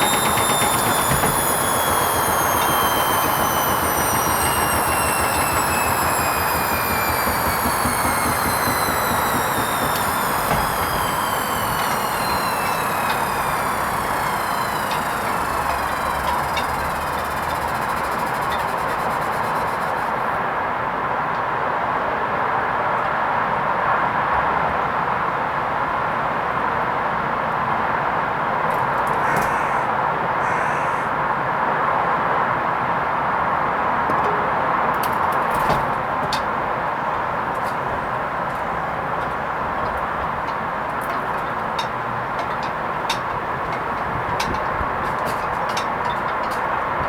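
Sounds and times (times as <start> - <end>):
washing machine drum rushing: 0.0 - 20.4
washing machine motor whine: 0.0 - 20.6, 28.0 - 31.1, 33.2 - 47.0.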